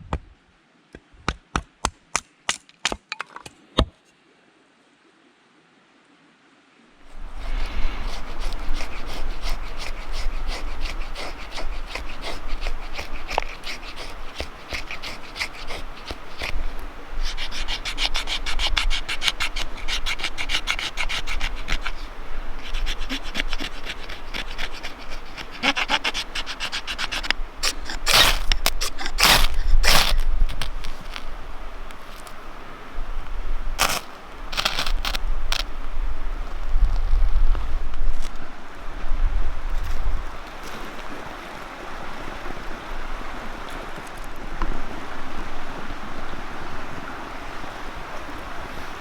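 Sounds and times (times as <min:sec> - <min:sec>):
rasping scraping on wood: 0:07.4 - 0:31.3, 0:33.8 - 0:35.6.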